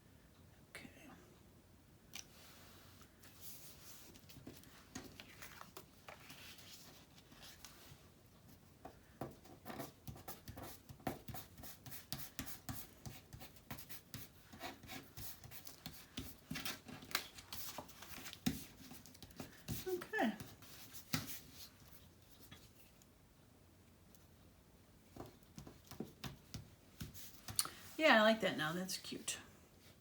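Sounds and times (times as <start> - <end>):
paper scraping and rustling: 3.3 - 8.0.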